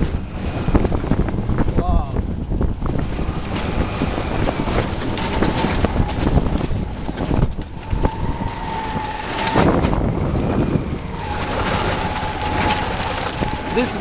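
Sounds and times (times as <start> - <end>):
rattles and knocks: 0.0 - 14.0
vehicle low rumble: 0.0 - 14.0.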